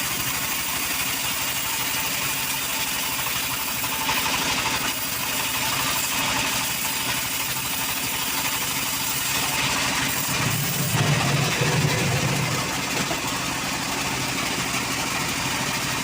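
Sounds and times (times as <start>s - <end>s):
saw engine running: 0.0s - 16.0s.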